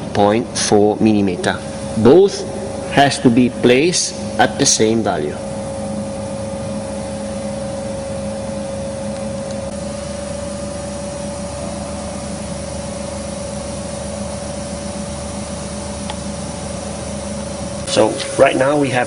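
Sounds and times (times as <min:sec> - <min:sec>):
constant machine whine: 0:00.0 - 0:19.0
machine hum: 0:00.0 - 0:19.0.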